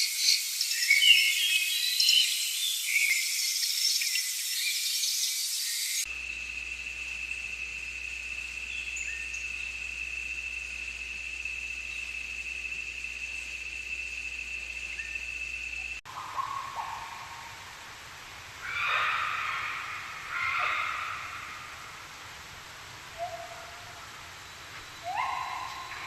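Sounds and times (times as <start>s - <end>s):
insect high trill: 0.0s - 17.2s, 23.2s - 26.0s.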